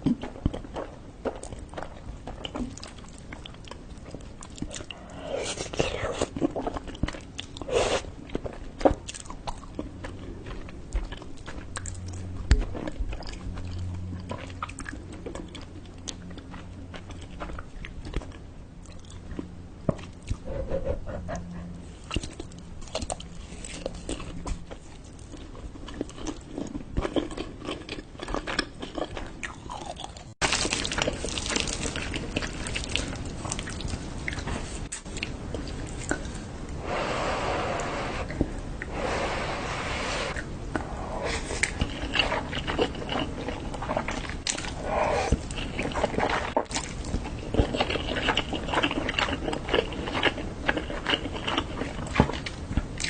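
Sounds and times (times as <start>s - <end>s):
crunchy biting and chewing: 40.3s - 53.0s.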